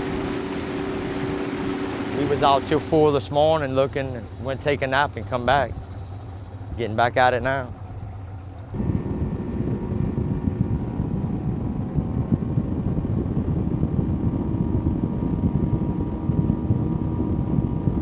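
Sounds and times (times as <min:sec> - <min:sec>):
faint steady whine: 0:00.0 - 0:18.0
vehicle engine rumbling: 0:00.0 - 0:18.0.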